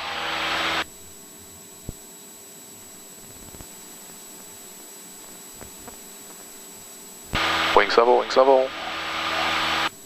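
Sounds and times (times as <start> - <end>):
faint electronic hiss with high tone: 0.0 - 10.0.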